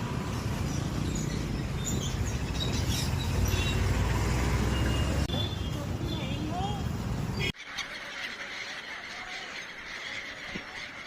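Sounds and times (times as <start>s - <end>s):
small birds chirping: 0.1s - 8.4s.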